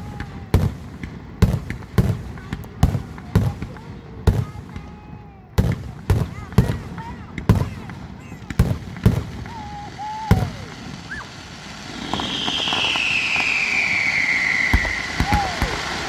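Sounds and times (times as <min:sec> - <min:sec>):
firework bangs: 0:00.0 - 0:16.0
firework whistle sliding downward: 0:09.0 - 0:16.0.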